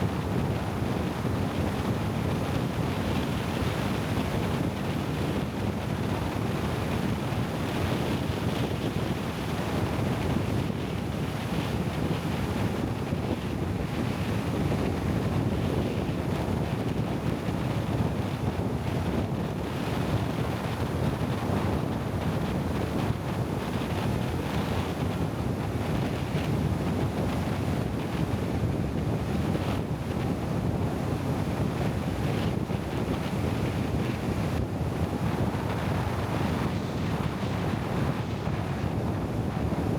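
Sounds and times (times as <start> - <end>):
wind on microphone: 20.4 - 39.9.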